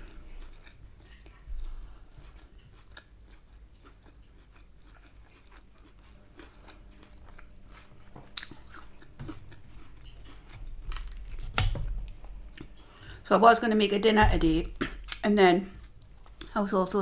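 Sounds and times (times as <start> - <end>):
crunchy food chewing: 0.0 - 13.2.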